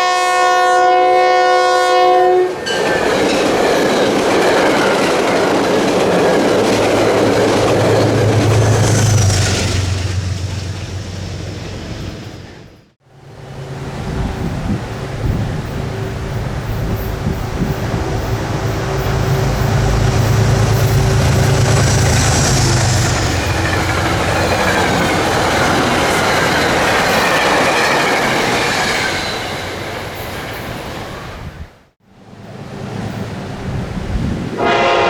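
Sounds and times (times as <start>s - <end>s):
train rumbling on rails: 0.0s - 35.0s
wheel squeal: 14.4s - 30.9s.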